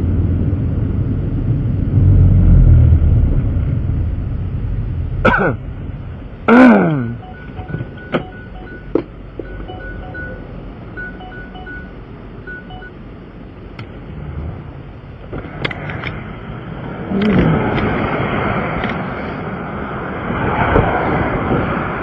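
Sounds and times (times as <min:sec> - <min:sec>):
vehicle engine and road rumble: 0:00.0 - 0:22.0
downward sliding tones: 0:07.2 - 0:11.9
short electronic beeps: 0:07.2 - 0:13.0.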